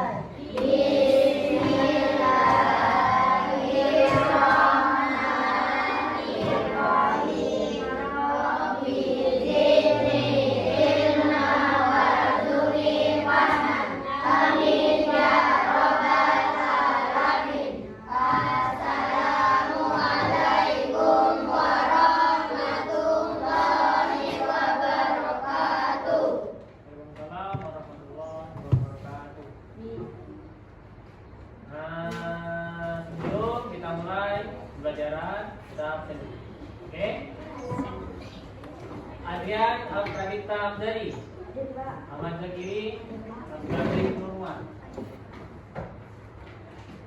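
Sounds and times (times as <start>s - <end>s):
children chanting in unison: 0.0s - 26.6s.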